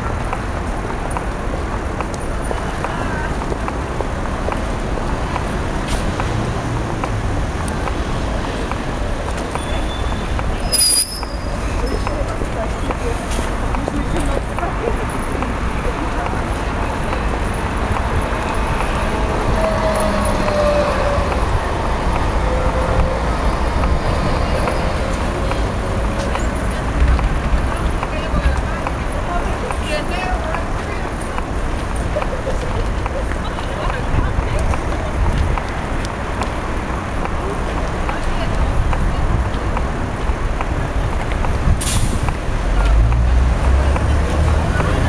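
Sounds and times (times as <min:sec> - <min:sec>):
traffic rumble: 0:00.0 - 0:45.0
faint high squeal: 0:09.7 - 0:11.6.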